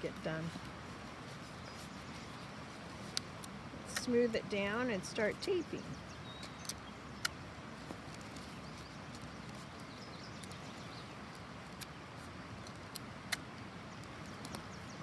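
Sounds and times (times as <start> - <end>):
tape and paper handling noise: 0.0 - 14.9
sharp clicks: 6.4 - 7.4.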